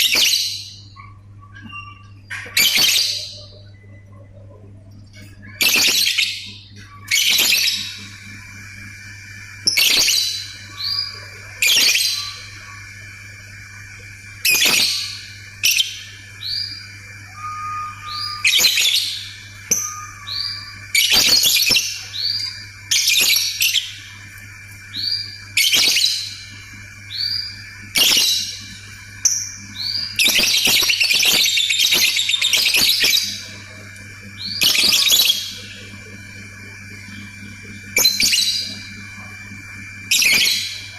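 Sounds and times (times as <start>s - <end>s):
bird chirping: 0.0s - 8.2s, 14.5s - 24.0s, 29.3s - 33.8s, 34.4s - 35.9s.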